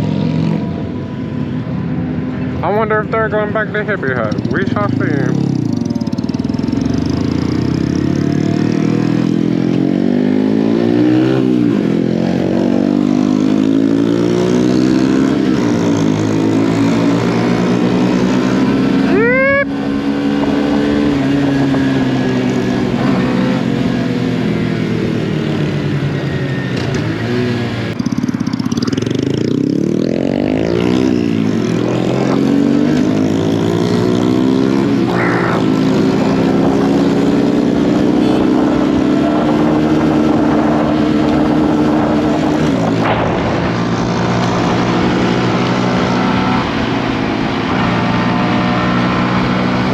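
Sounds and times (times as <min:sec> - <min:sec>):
mini motorcycle engines revving: 0:26.0 - 0:43.7.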